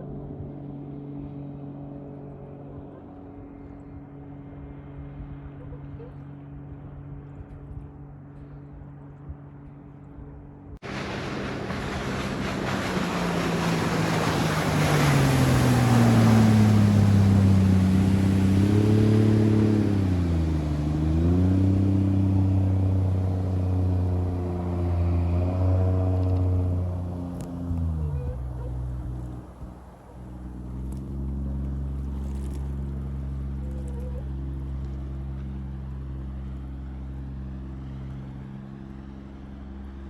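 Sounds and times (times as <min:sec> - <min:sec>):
rush of wind and water: 0:10.7 - 0:34.8
boat diesel engine running: 0:10.8 - 0:40.0.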